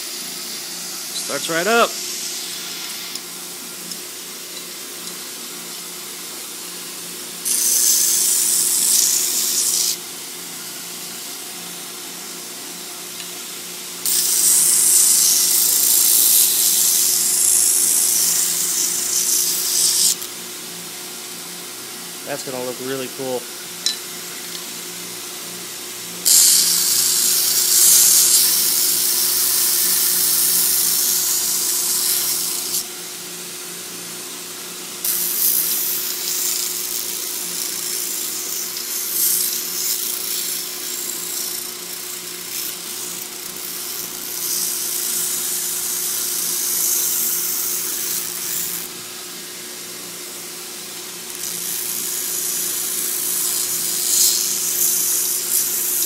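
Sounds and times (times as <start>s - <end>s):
hissing belt grinding: 7.4s - 10.0s, 26.2s - 32.8s, 51.3s - 56.0s.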